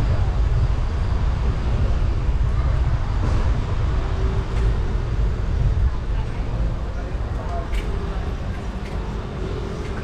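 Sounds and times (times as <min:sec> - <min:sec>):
faint street noise: 0:00.0 - 0:10.0
wind buffeting microphone: 0:00.0 - 0:10.0.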